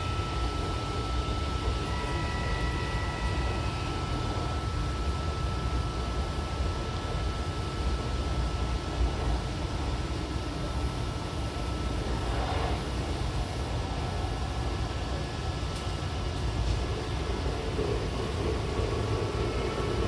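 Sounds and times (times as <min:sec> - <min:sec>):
train wheels rumbling on rail: 0:11.6 - 0:20.0.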